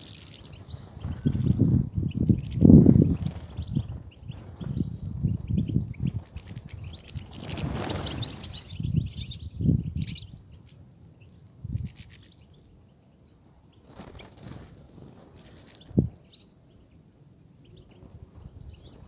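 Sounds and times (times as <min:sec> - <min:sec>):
birds twittering: 0:00.0 - 0:10.6.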